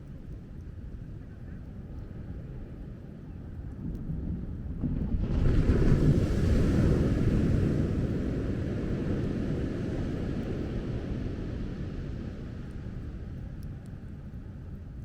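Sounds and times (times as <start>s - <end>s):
wind rumble on microphone: 0.0s - 15.0s
wave breaking on beach: 5.2s - 12.2s.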